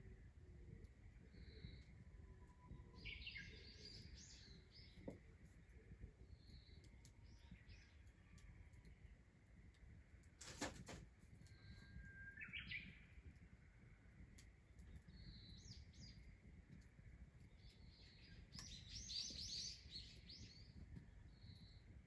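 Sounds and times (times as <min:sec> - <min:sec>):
small bird chirping: 0:17.4 - 0:21.9.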